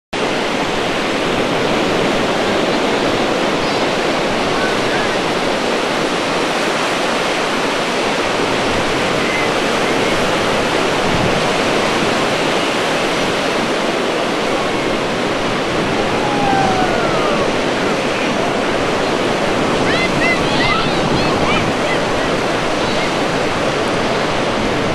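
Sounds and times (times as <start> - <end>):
ocean waves washing ashore: 0.2 - 24.9.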